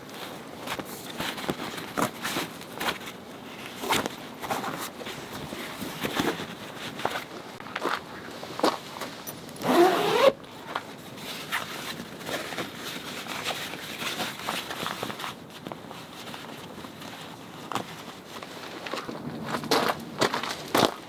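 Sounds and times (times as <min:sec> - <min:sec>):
zipper pulled: 0:09.6 - 0:10.4.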